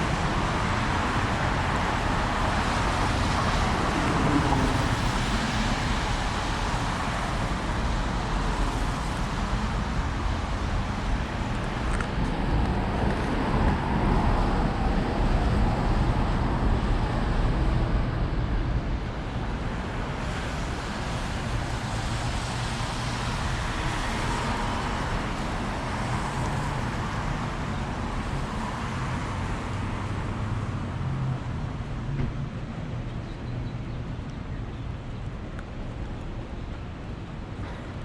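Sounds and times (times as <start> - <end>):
cars passing on wet road: 0.0 - 33.2
rain hiss: 0.1 - 9.4.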